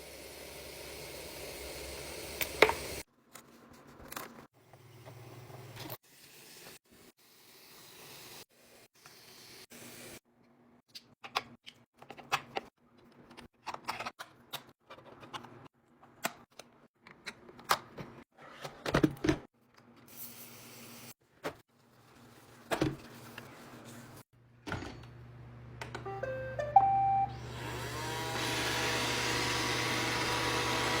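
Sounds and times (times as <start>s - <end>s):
robot vacuum beep tune: 26.0s - 27.5s
robot vacuum motors whirring: 27.4s - 31.0s.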